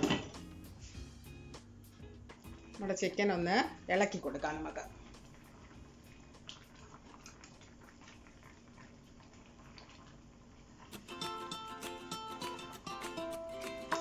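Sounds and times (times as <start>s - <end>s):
music: 0.0s - 6.8s, 10.9s - 14.0s
faint bubbling in a pan: 0.0s - 11.0s.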